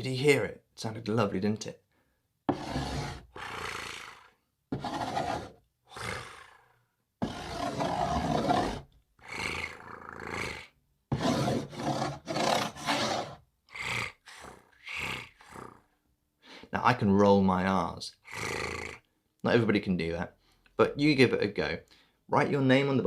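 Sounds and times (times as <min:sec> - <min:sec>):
man making rasping hissing sounds: 0:02.6 - 0:04.4, 0:05.2 - 0:10.7, 0:11.7 - 0:16.7, 0:18.1 - 0:19.0.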